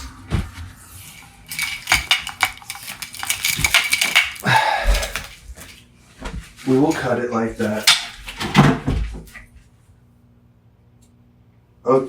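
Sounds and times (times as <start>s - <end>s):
plastic plugs clicking and rattling: 1.2s - 5.3s.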